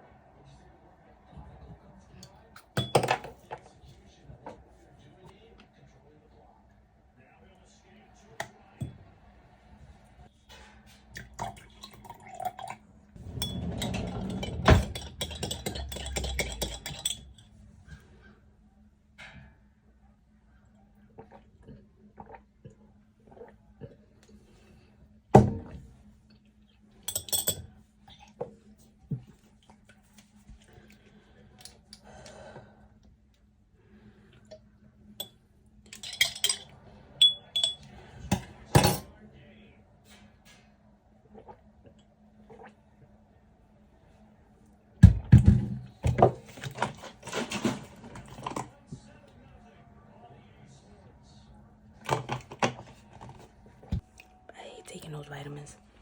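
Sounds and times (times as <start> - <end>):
glassware and dishes clinking: 2.7 - 3.7, 11.2 - 18.0, 27.1 - 27.8, 35.2 - 39.1
bottles and glass clicking: 13.4 - 17.4.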